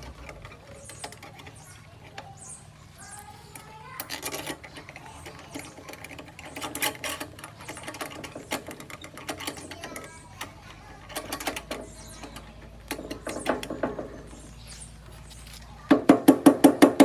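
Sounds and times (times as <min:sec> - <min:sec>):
metallic clicking and knocking: 0:03.5 - 0:14.5.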